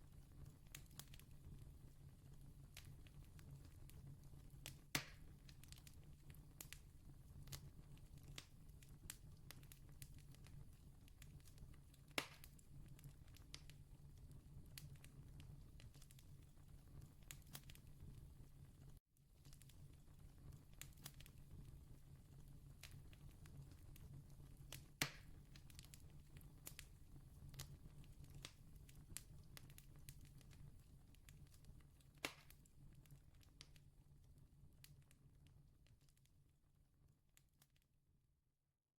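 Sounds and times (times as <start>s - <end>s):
campfire crackling: 19.4s - 33.8s.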